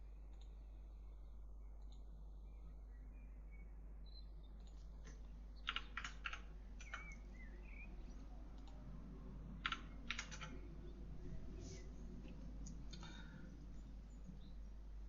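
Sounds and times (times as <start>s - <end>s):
faint low hum: 0.0s - 15.0s
keyboard typing: 4.6s - 7.2s, 9.6s - 10.6s.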